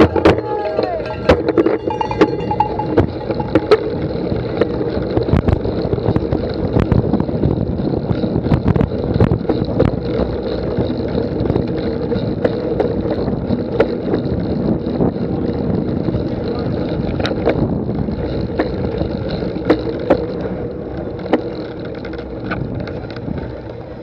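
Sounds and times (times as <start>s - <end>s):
knocks and rattles: 0.0s - 5.6s
wind rumbling on microphone: 0.0s - 24.0s.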